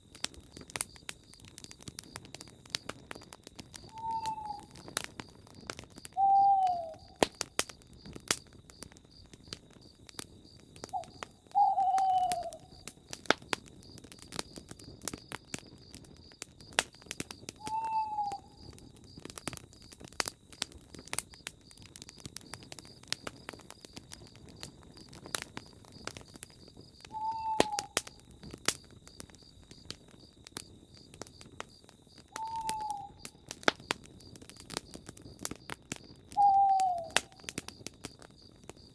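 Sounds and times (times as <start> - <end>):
campfire crackling and popping: 0.0 - 38.9
owl hooting: 3.9 - 4.8, 6.2 - 7.2, 10.9 - 12.7, 17.6 - 18.6, 27.1 - 28.0, 32.3 - 33.2, 36.4 - 37.5.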